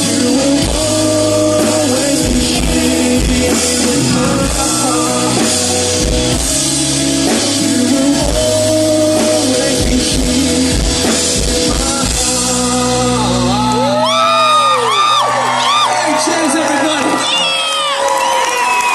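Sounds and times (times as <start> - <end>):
singing: 0.0 - 6.5
drum kit: 0.0 - 15.0
live rock band playing: 0.0 - 17.6
crowd whooping and cheering: 13.2 - 18.9.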